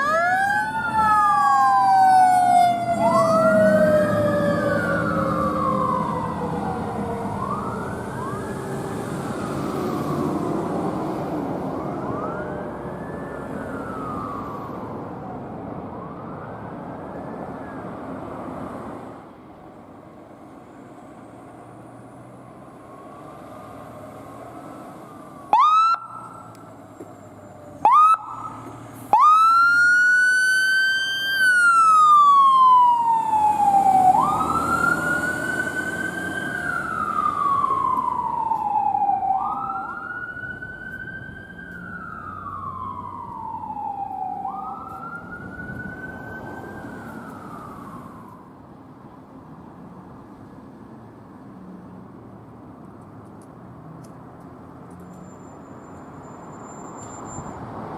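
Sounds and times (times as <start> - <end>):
siren chirps: 0.0 - 10.3, 11.7 - 18.0, 25.1 - 48.5
emergency vehicle siren wailing: 0.0 - 18.8, 22.6 - 49.2
vehicle engine: 0.0 - 57.9.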